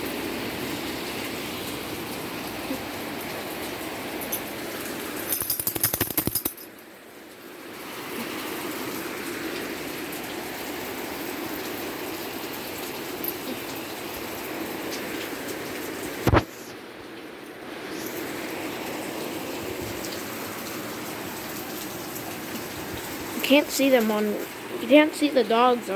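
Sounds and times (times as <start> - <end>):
heavy rain falling: 0.0 - 5.3, 7.2 - 25.9.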